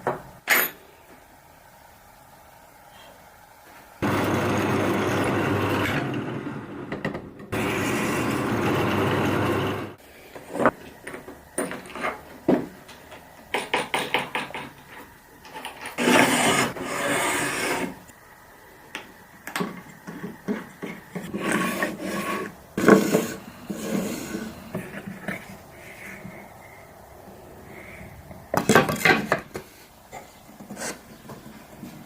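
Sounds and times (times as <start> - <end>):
rubbing and scraping wood: 15.9 - 18.0, 20.2 - 26.5
rasping strokes on wood: 20.6 - 25.1.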